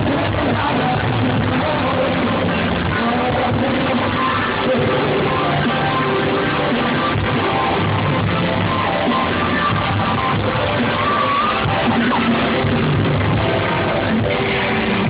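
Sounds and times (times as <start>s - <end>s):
singing: 0.0s - 7.6s
crowd yelling: 0.0s - 15.0s
live pop concert music: 0.0s - 15.0s.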